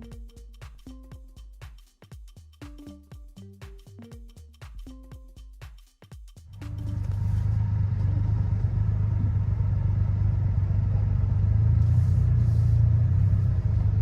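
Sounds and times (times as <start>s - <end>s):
motorcycle engine rumbling: 6.6s - 14.0s.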